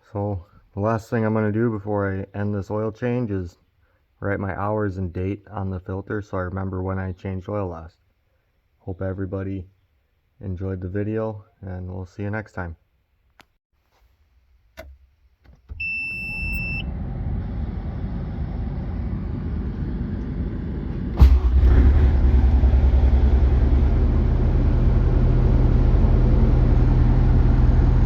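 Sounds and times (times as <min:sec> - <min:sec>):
short electronic beep: 0:15.8 - 0:16.9
diesel engine starting and idling: 0:15.8 - 0:28.0
rising whir: 0:15.8 - 0:28.0.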